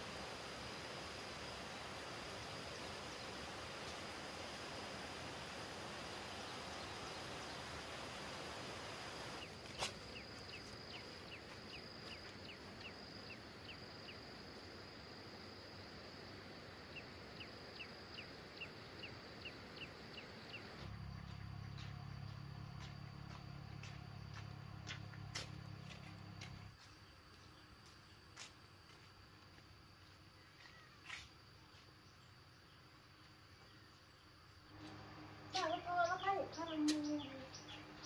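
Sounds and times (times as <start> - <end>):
low hiss: 0.0 - 20.8
insect drone: 0.0 - 38.0
bird chirping: 33.6 - 38.0.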